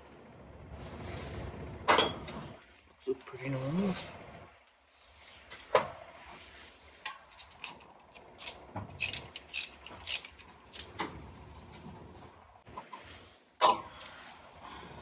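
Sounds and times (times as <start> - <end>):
metallic clicks of hand tools: 7.4 - 11.2.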